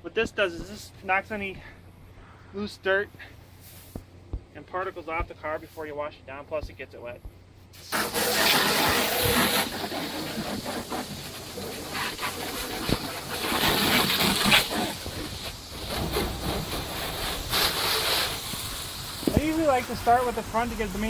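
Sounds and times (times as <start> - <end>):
hose spraying water on car: 7.7 - 21.0.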